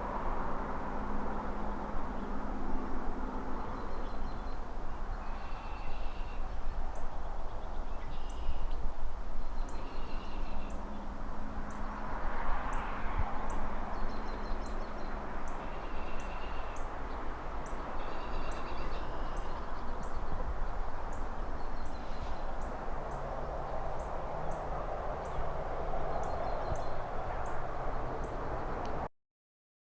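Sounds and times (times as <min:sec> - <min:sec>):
cars passing: 0:00.0 - 0:29.1
distant traffic rumble: 0:00.0 - 0:29.1
birds chirping: 0:12.6 - 0:28.9.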